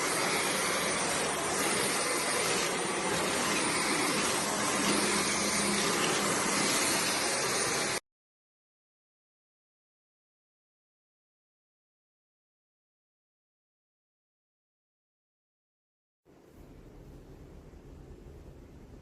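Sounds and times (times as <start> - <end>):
vacuum cleaner running: 0.0 - 8.0.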